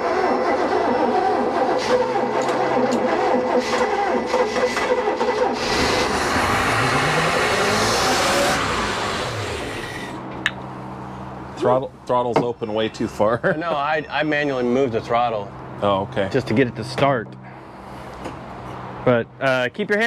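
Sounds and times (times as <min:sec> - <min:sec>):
starter motor cranking: 0:00.0 - 0:10.2
boat engine revving: 0:00.0 - 0:10.4.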